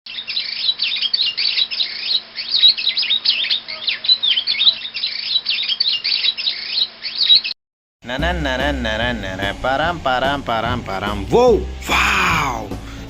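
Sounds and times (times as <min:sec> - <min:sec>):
birds chirping and twittering: 0:00.1 - 0:07.6.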